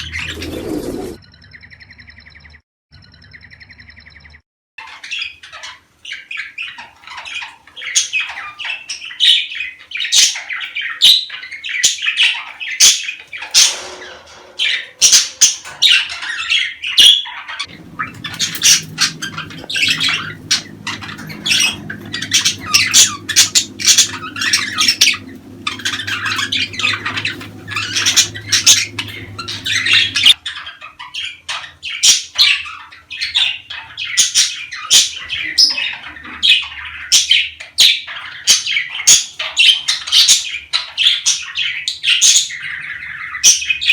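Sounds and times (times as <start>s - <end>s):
budgerigars chattering and squawking: 4.8s - 43.9s
low steady hum: 17.7s - 30.4s.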